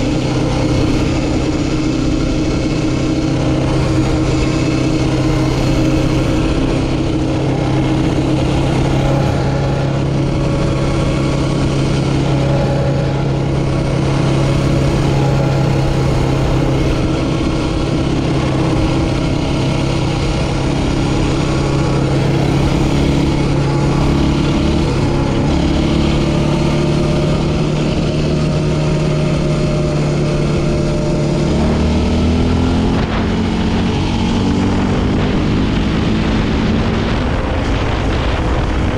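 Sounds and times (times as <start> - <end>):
quad bike engine running: 0.0 - 38.9.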